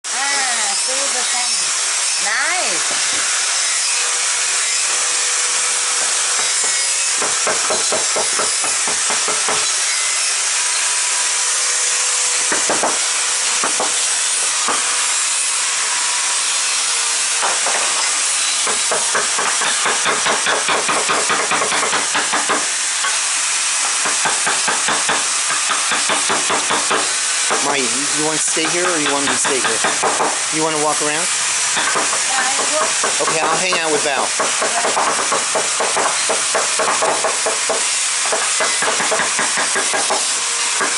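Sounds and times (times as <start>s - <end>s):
mallet tapping chisel into wood: 28.6s - 30.4s.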